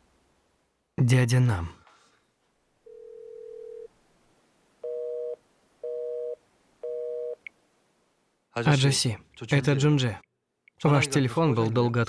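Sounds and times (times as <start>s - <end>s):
steady telephone tone: 2.9s - 3.9s, 4.8s - 7.5s.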